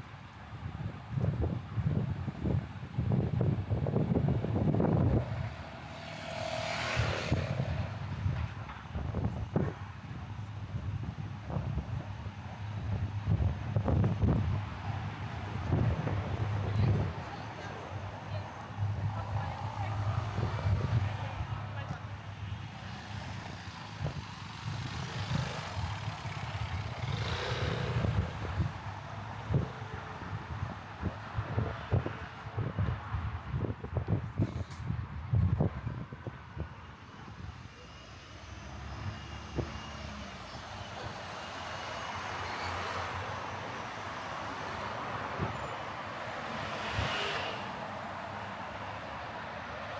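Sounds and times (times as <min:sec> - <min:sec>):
traffic rumble: 0:00.1 - 0:49.9
vehicles passing: 0:02.7 - 0:49.9.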